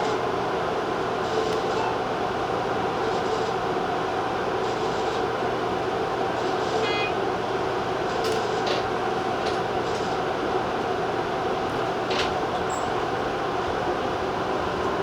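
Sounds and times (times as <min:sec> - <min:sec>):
train rumble and motor hum: 0:00.0 - 0:15.0
brief high tone: 0:06.8 - 0:07.2.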